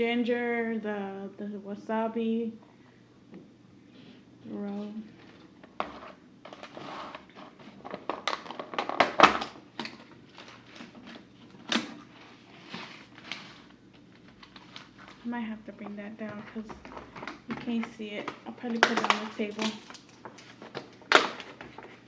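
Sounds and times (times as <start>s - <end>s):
plastic packaging crinkling: 5.2s - 22.0s.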